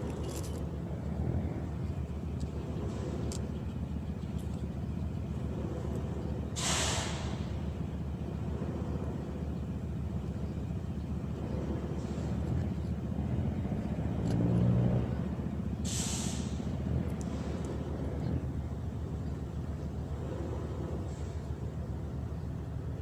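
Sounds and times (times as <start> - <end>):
engine rumbling: 0.0 - 23.0
sharp hiss of air: 6.6 - 7.5, 15.8 - 16.7.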